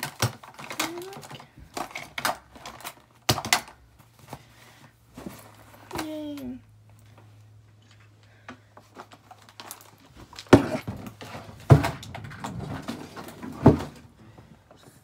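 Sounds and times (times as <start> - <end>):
household items rustling: 0.0 - 15.0
loud knocks of objects set down: 10.2 - 14.1.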